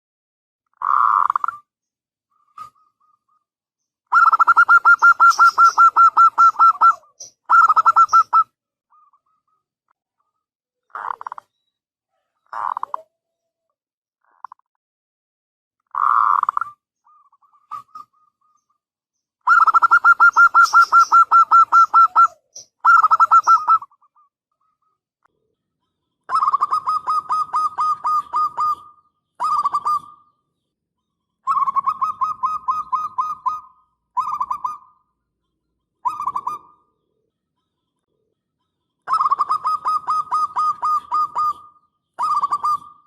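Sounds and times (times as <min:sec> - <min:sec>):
dove cooing: 0:04.1 - 0:09.6, 0:12.2 - 0:13.2, 0:19.5 - 0:24.2, 0:26.3 - 0:30.4, 0:31.5 - 0:35.0, 0:36.0 - 0:36.8, 0:39.1 - 0:43.0.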